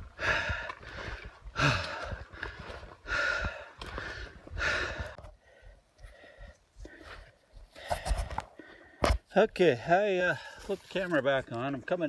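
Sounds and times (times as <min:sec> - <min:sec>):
faint footsteps: 0:00.0 - 0:08.7
person breathing hard: 0:00.0 - 0:09.1.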